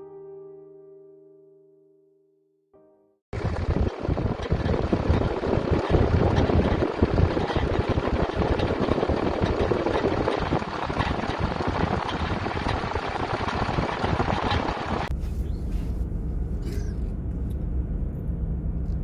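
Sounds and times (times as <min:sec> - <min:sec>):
wind on microphone: 0:03.4 - 0:16.0
diesel truck engine running: 0:03.4 - 0:19.0.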